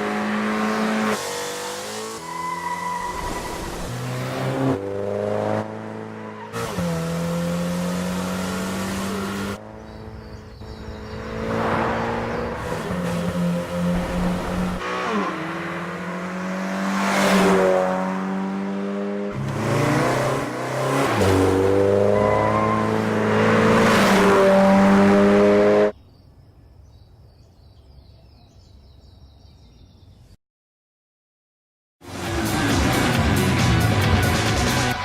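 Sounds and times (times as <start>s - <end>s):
car engine accelerating hard: 3.7s - 25.9s.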